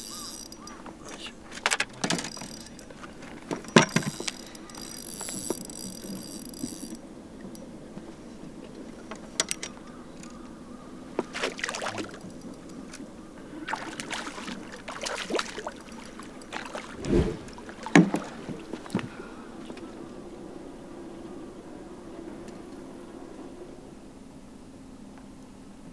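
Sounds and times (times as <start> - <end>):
rattles and knocks on a boat: 0.6 - 5.6
water splashes: 11.3 - 12.3, 13.6 - 18.7.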